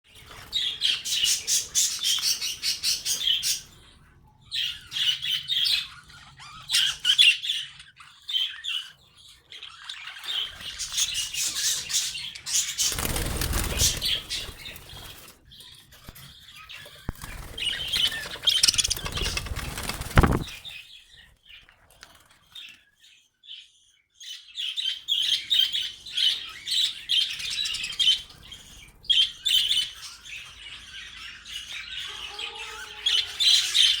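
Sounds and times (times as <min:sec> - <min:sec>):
birds fluttering wings: 0:12.4 - 0:15.4, 0:17.0 - 0:20.8.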